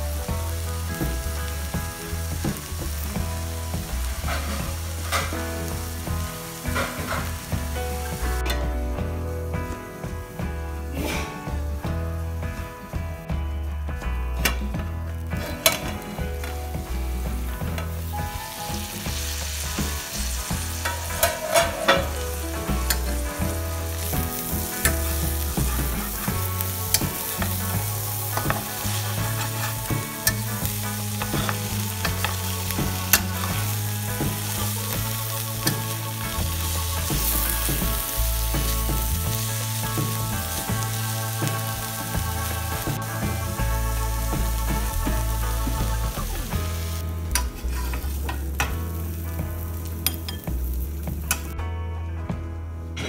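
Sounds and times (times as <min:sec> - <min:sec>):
food sizzling in a pan: 0:00.0 - 0:08.6, 0:15.6 - 0:51.4
spatula stirring and scraping: 0:19.5 - 0:40.2.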